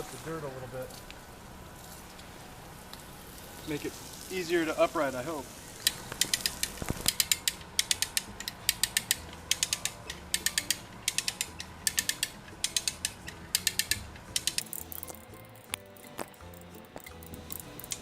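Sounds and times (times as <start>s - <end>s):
ratchet clicking: 5.8s - 18.0s.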